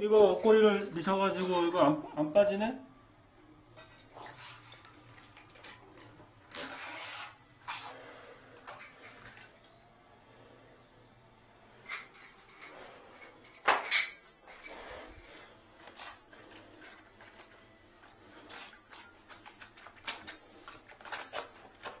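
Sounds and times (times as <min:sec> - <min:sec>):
wire hanger clicking and scraping: 0:11.8 - 0:22.0.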